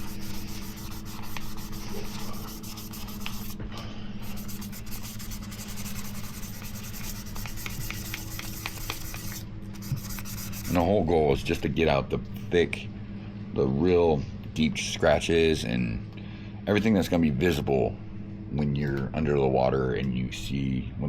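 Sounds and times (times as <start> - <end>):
sandpaper rubbing on plastic: 0.0 - 3.6, 4.2 - 11.0
low hum: 0.0 - 21.0.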